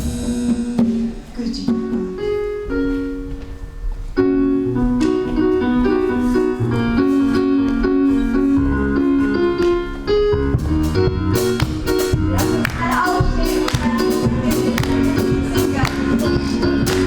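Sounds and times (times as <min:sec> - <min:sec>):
electric keyboard gospel chords: 0:00.0 - 0:17.0
low bass notes: 0:04.2 - 0:17.0.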